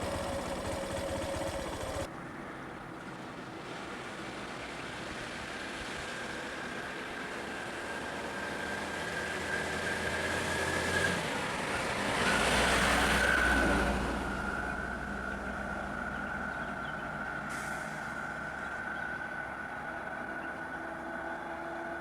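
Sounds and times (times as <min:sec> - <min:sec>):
deep vehicle rumble: 0:00.0 - 0:02.1, 0:12.5 - 0:22.0
vehicle engine whine: 0:00.0 - 0:22.0.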